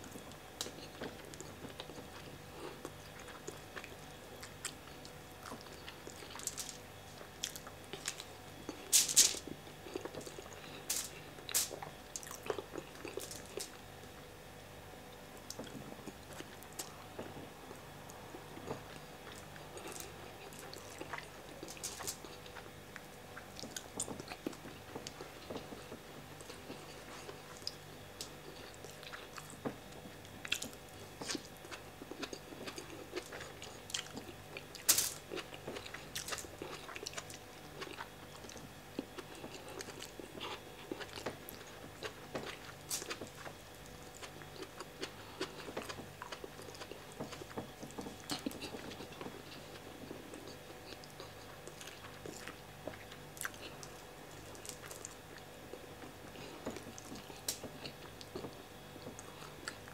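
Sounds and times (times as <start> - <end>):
person chewing: 0.1 - 13.9, 15.4 - 59.9
mouth clicks and crunches: 30.4 - 59.9.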